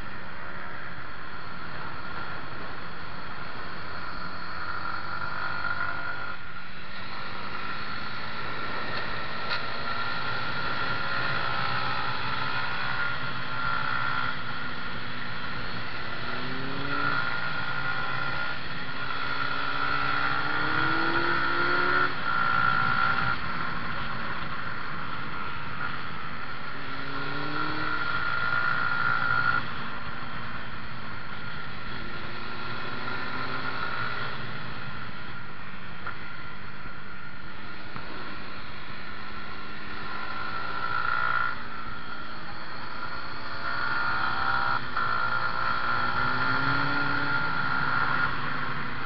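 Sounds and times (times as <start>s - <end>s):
motorcycle engine revving: 1.4s - 36.3s, 37.3s - 49.0s.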